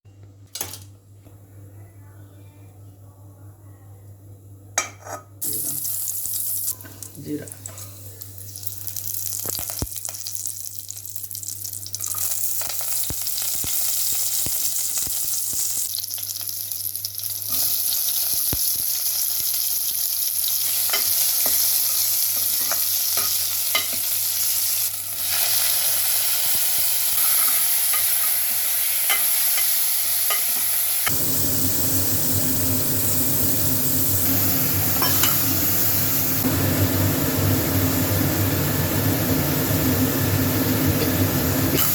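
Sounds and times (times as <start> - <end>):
seeds sizzling in hot oil: 5.4 - 41.9.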